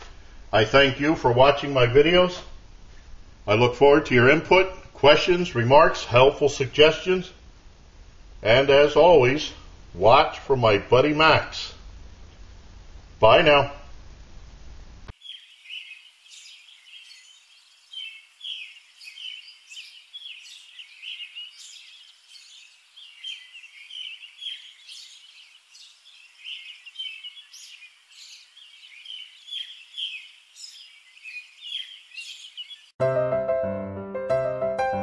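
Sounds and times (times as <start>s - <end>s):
birds chirping and singing: 15.1s - 33.0s.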